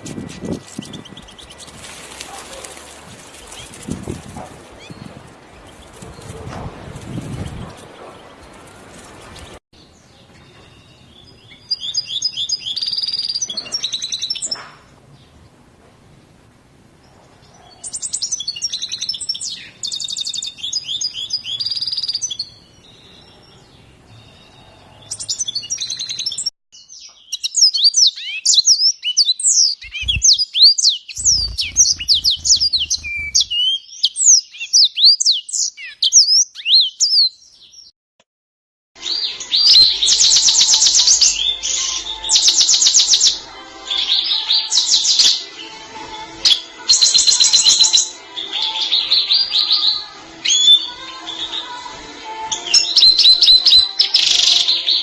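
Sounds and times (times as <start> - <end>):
songbird twittering and chirping: 0.0 - 14.6, 17.5 - 37.9.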